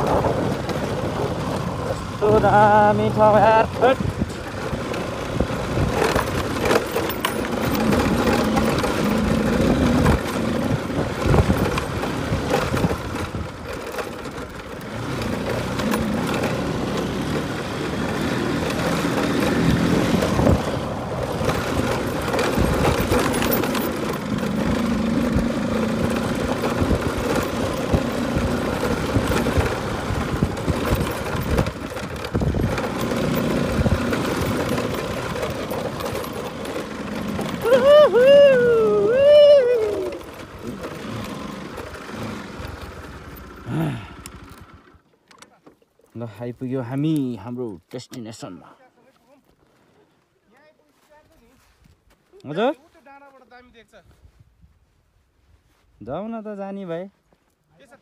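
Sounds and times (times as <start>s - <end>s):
motorcycle engine running: 0.0s - 45.1s
riding noise: 0.0s - 45.1s.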